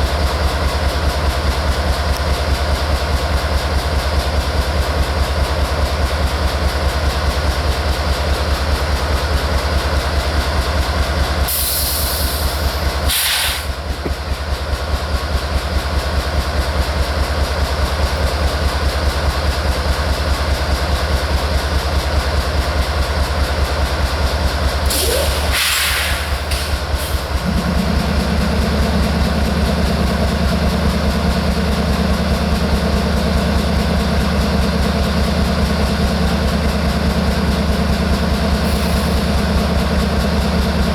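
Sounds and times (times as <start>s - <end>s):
diesel locomotive low rumble: 0.0s - 40.9s
short bursts of hissing: 11.5s - 13.7s, 24.9s - 26.8s.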